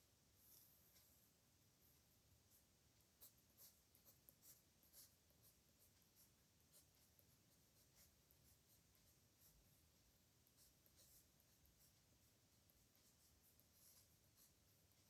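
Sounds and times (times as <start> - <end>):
pen scratching on paper: 2.5 - 15.0.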